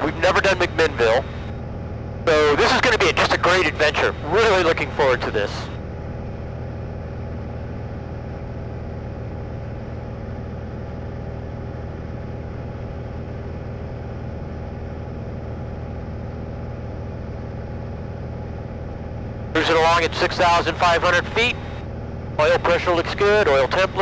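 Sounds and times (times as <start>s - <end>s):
light airplane engine droning: 0.0s - 24.0s.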